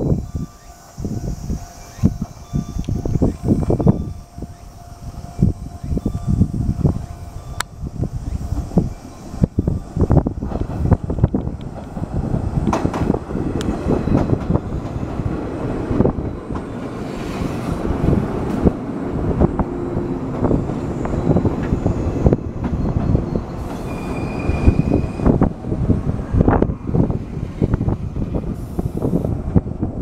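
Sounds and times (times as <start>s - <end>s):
train rumble: 0.0s - 30.0s
wheel squeal braking: 19.9s - 25.5s.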